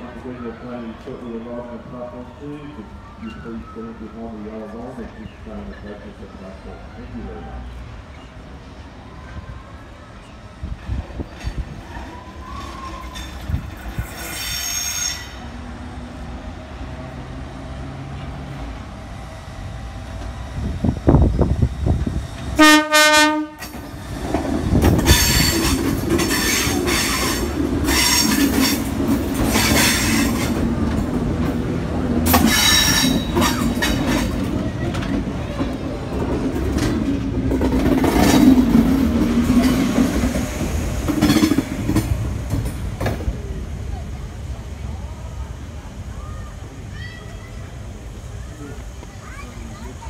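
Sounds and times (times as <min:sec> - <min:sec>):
wheels squealing on rails: 0:00.0 - 0:17.2, 0:18.0 - 0:45.0
electric train arriving: 0:00.0 - 0:50.0
train horn blast: 0:22.6 - 0:23.8.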